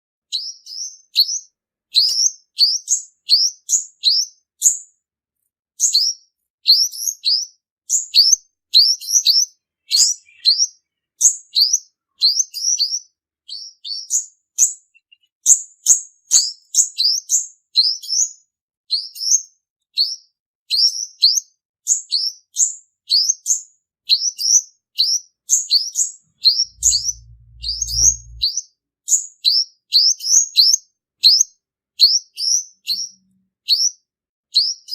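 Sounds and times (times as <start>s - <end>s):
sunbird singing high chirps: 5.8s - 18.3s, 23.1s - 28.6s
low hum: 26.4s - 28.5s.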